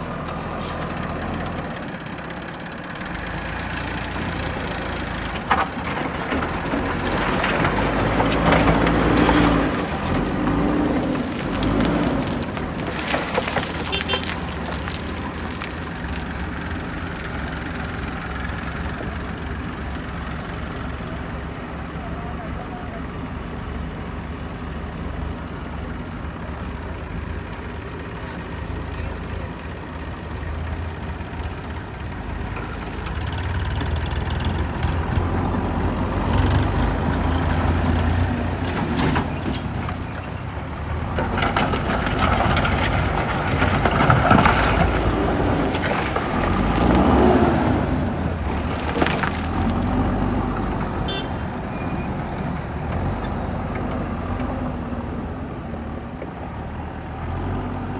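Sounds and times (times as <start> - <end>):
diesel engine running: 0.0 - 57.9
knocks and clatter: 36.3 - 47.7.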